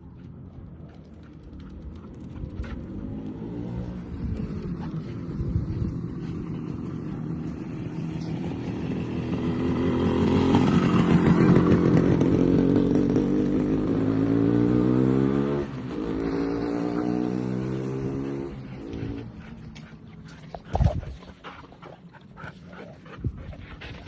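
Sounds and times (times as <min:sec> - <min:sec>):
motorcycle engine revving: 0:01.6 - 0:19.5.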